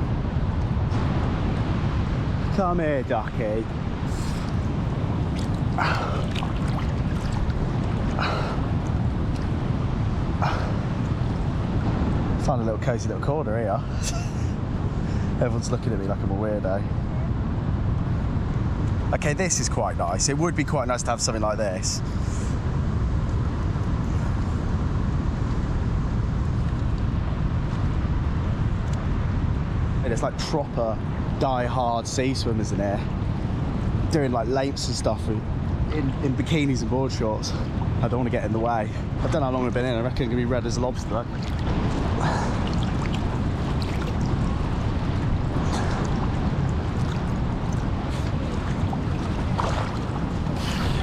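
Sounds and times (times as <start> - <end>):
wind rumble on microphone: 0.0 - 51.0
water splashing: 3.3 - 11.9, 40.7 - 51.0.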